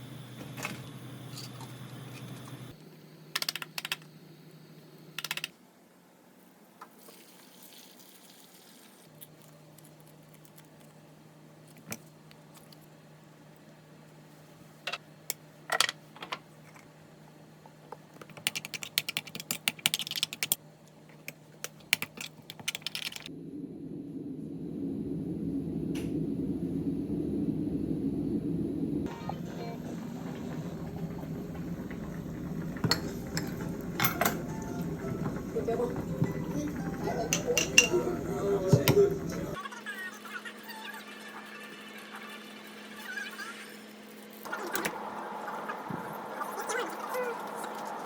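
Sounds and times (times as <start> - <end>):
faint low hum: 20.8 - 39.6.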